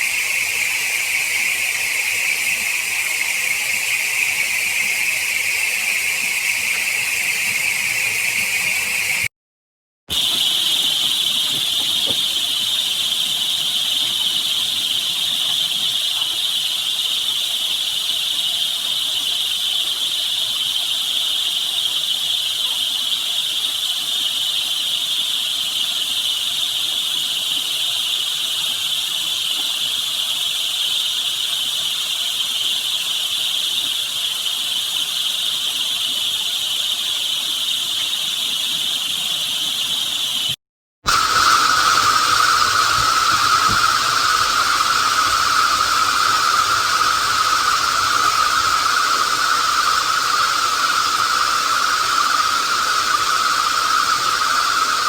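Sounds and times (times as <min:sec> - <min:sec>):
voice-changed rushing water hiss: 0:00.0 - 0:09.3, 0:10.1 - 0:19.6, 0:39.4 - 0:55.0.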